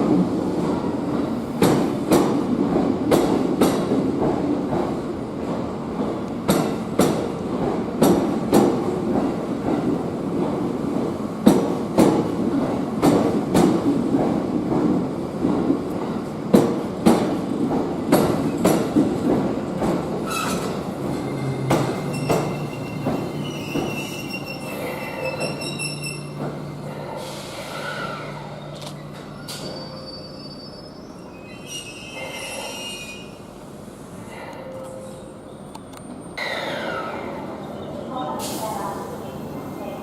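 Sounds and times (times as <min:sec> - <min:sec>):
train wheels clacking over rails: 0:00.0 - 0:29.8
high-pitched wheel squeal: 0:20.3 - 0:26.4, 0:29.4 - 0:33.4.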